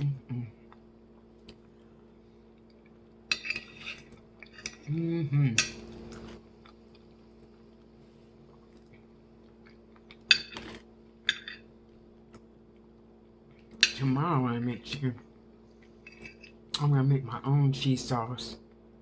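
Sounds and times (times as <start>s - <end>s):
cutlery clinking on a plate: 3.3s - 4.9s.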